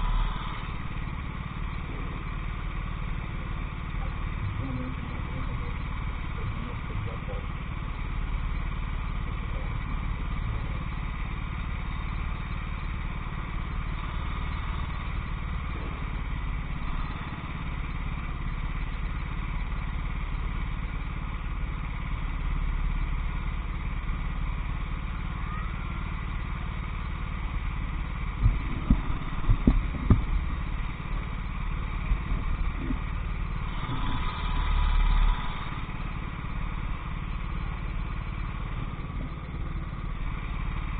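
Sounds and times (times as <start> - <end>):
racing kart engine: 0.0 - 40.9
sharp low thumps: 28.3 - 31.2.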